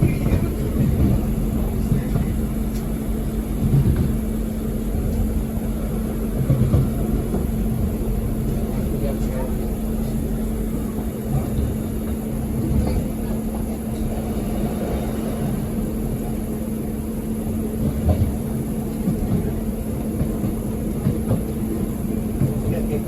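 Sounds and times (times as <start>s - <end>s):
train carriage rumble: 0.0s - 23.0s.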